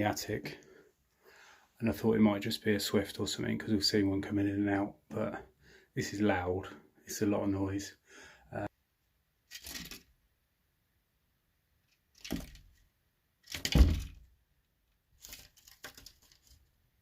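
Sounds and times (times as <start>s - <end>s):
bird scuffling and thumping: 12.1s - 12.8s
bird scratching above ceiling: 15.1s - 16.8s.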